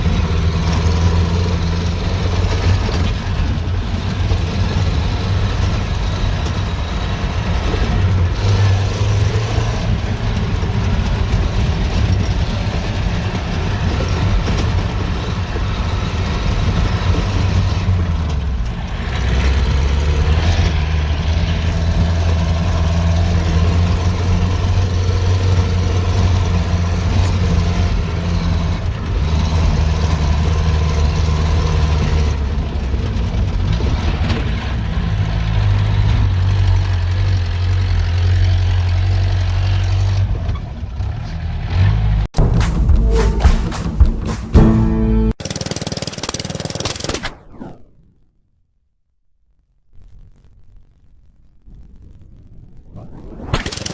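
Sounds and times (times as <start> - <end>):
engine humming at low speed: 0.0 - 42.3.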